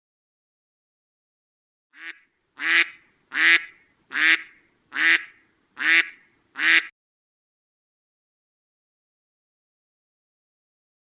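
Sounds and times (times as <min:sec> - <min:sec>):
duck quacking: 0:02.0 - 0:06.9.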